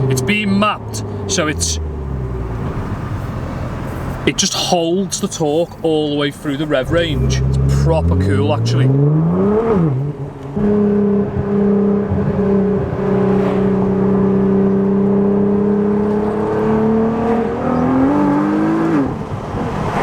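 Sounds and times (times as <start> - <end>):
sports car engine revving: 0.0 - 4.5, 6.6 - 20.0.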